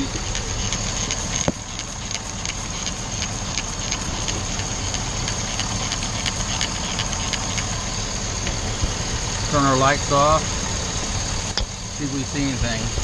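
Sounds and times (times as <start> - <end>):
sharp ticks: 0.0 - 8.6
high whine: 0.0 - 13.0
misfiring engine idling: 0.0 - 13.0.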